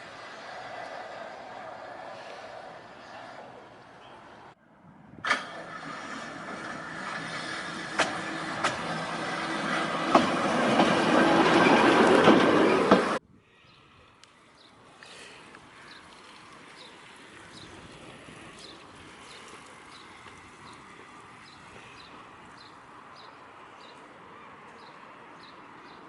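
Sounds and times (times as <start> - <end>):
railway car running on track: 0.0 - 13.2
wheels clicking over rail joints: 5.2 - 13.2.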